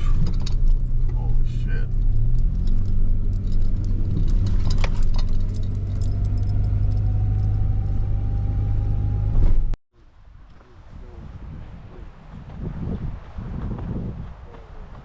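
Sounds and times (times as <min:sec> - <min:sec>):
car engine and road rumble: 0:00.0 - 0:09.8
rattles and clicks: 0:00.0 - 0:09.8.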